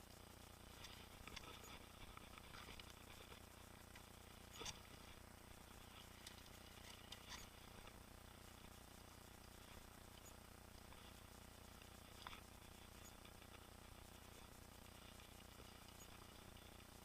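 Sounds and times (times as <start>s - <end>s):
bike clicks and rattles: 0.7s - 5.2s, 5.8s - 8.0s.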